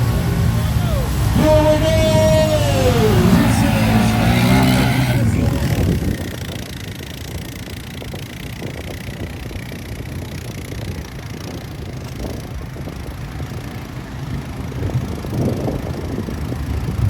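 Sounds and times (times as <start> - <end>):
off-road vehicle engines running: 0.0 - 17.0
wind noise on microphone: 4.4 - 17.0.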